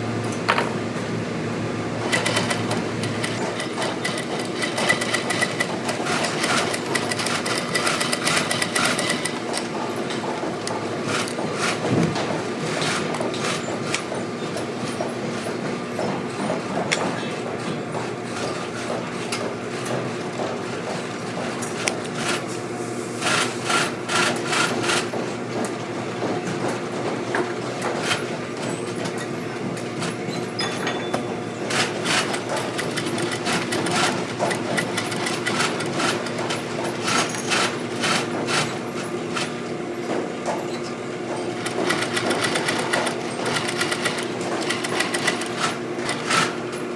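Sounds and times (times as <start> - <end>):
rapid knocking and clicking: 2.0 - 12.3, 31.7 - 38.6, 41.5 - 46.4.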